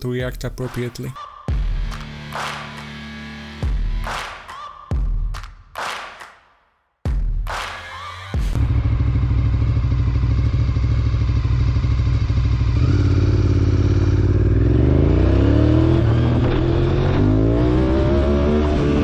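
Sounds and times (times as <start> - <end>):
motorcycle engine accelerating: 8.5 - 19.0.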